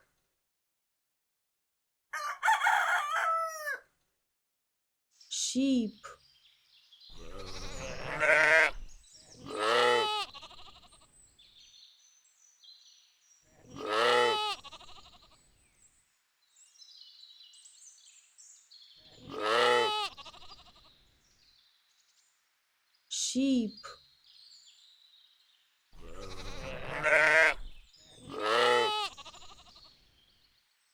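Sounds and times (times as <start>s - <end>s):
sheep bleating: 7.2s - 11.1s, 13.7s - 15.4s, 19.2s - 20.9s, 26.0s - 29.9s.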